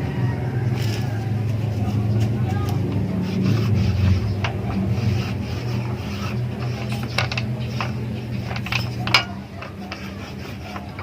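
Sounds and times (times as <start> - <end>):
steady low hum: 0.0 - 11.0
metallic clinks and taps: 6.6 - 11.0.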